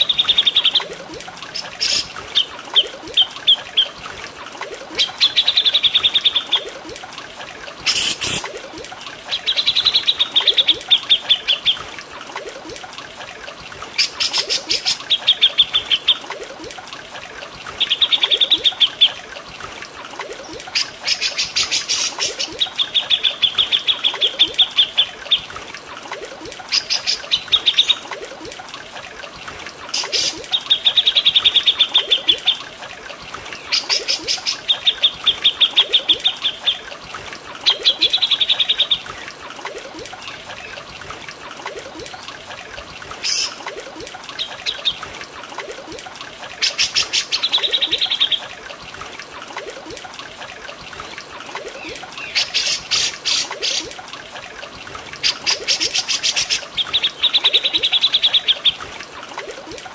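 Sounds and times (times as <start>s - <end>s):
water trickling: 0.0s - 59.9s
songbird chattering calls: 1.6s - 2.5s, 51.8s - 53.9s.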